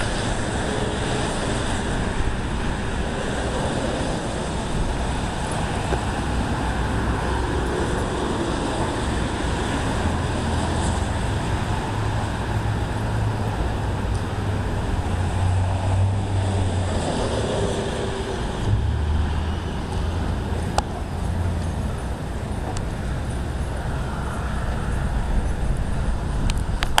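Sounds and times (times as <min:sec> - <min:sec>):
rushing storm wind: 0:00.0 - 0:27.0
wind buffeting microphone: 0:00.0 - 0:27.0.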